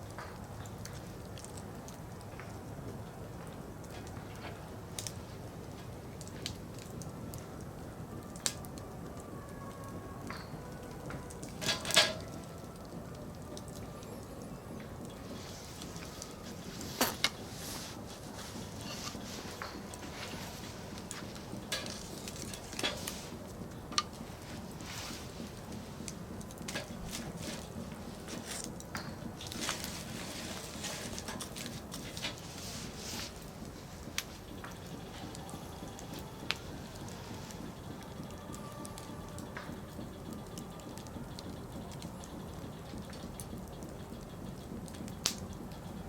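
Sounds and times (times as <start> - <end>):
campfire crackling and popping: 0.0 - 46.0
low rush of flames: 0.0 - 46.0
fire hissing: 11.4 - 46.0.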